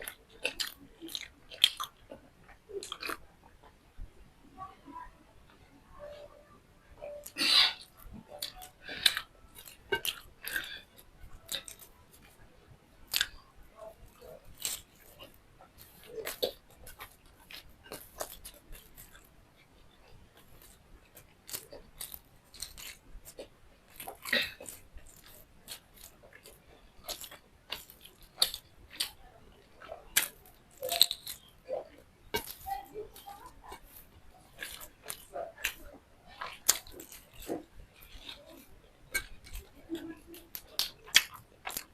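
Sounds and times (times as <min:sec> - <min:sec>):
person chewing food: 0:00.0 - 0:04.2, 0:07.0 - 0:41.9.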